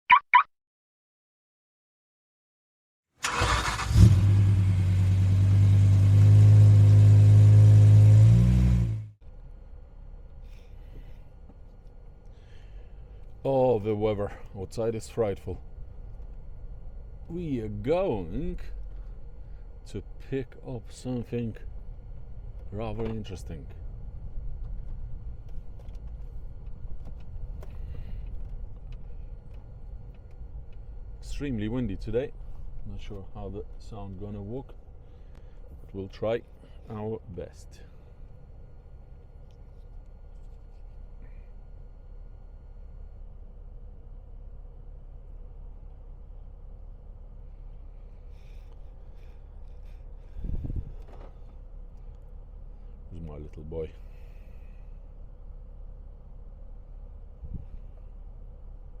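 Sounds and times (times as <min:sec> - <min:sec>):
car engine starting and revving: 0:03.2 - 0:09.2
wind buffeting microphone: 0:50.3 - 0:51.0.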